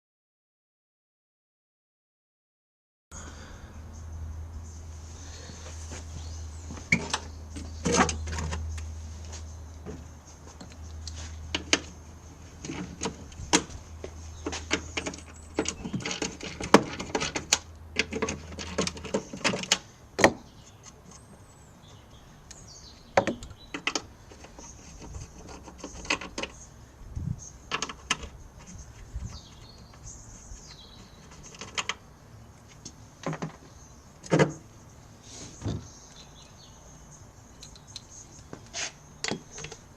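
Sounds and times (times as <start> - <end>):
hardware clicking and knocking: 12.6 - 21.0.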